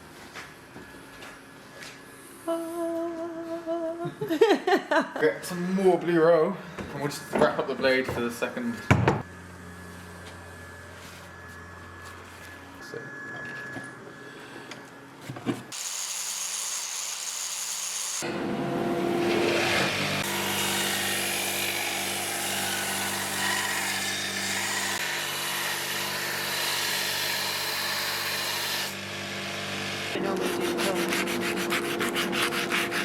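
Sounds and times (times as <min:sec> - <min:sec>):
power sander grinding wood: 0:15.7 - 0:18.3, 0:19.0 - 0:33.0.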